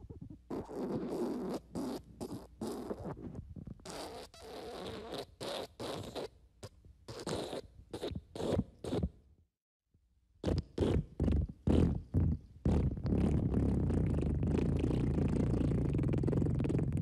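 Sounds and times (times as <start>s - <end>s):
fart sound effect: 10.4s - 17.0s.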